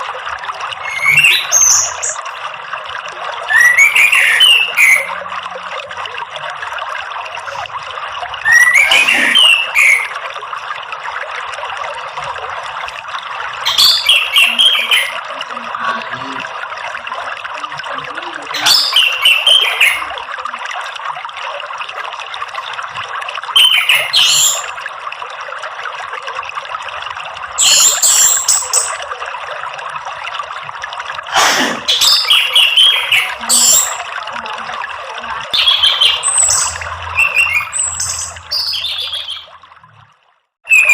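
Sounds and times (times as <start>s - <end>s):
trickling water: 0.0s - 40.9s.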